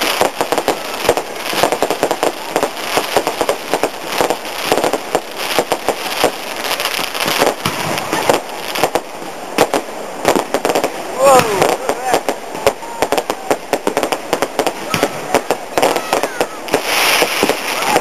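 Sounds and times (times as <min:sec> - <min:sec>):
fireworks cracking and popping: 0:00.0 - 0:18.0.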